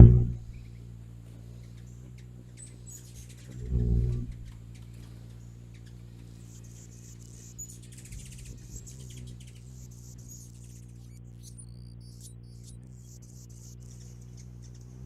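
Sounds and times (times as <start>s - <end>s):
faint high bird chirps: 0.0s - 15.0s
steady low hum: 0.0s - 15.0s.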